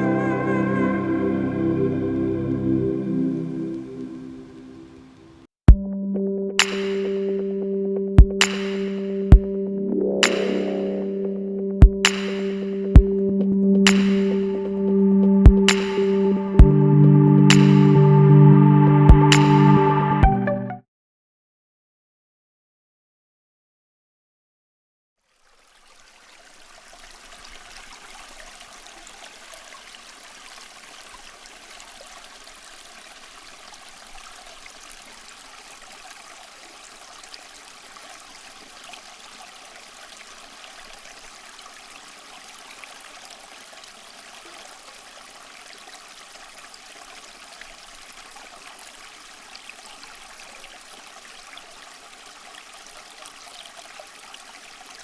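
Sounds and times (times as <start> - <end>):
water trickling in fountain: 25.2 - 55.0.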